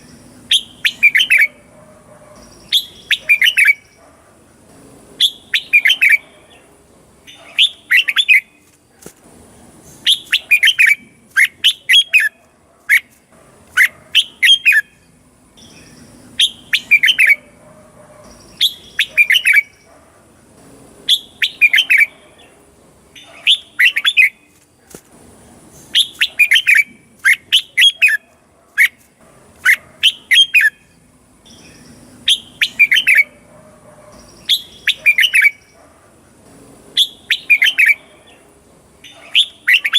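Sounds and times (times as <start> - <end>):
bird singing whistled phrases: 0.5 - 1.6, 2.6 - 4.0, 5.2 - 6.2, 10.0 - 12.4, 15.6 - 17.4, 18.5 - 19.9, 21.1 - 22.1, 25.9 - 28.2, 31.5 - 33.3, 34.3 - 35.8, 37.0 - 38.0, 39.0 - 39.9.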